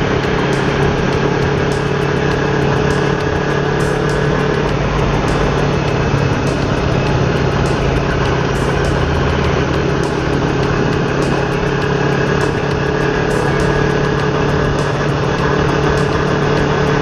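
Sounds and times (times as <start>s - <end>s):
motorcycle engine steady drone: 0.0s - 17.0s.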